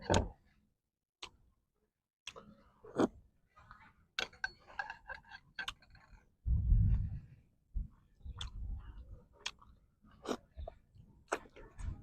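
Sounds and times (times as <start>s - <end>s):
person chewing food: 2.2s - 7.2s, 7.9s - 12.0s.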